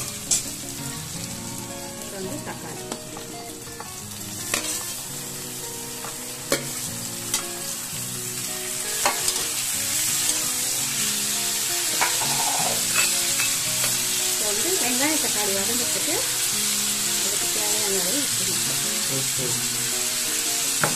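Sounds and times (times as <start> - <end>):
vegetables sizzling in hot oil: 0.0 - 20.9
ladle clinking against pan: 12.0 - 13.6.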